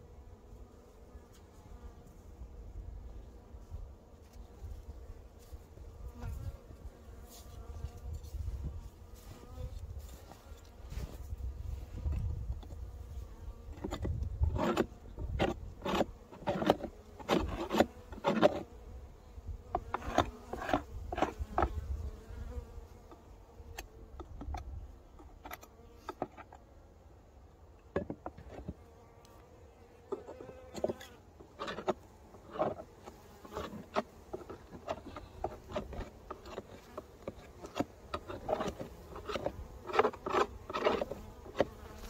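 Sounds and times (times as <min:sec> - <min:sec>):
honeybees buzzing: 0:00.0 - 0:42.0
sharp scrapes and knocks: 0:13.7 - 0:18.7, 0:19.7 - 0:21.8, 0:23.8 - 0:26.6, 0:30.1 - 0:42.0.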